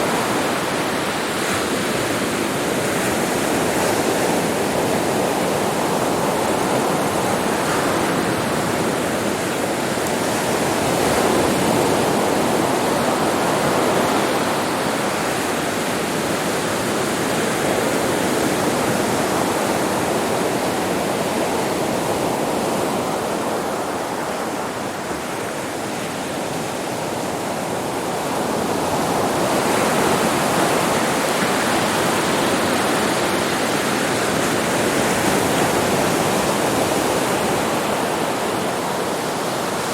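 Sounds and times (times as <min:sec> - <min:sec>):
sea waves washing onto beach: 0:00.0 - 0:39.9.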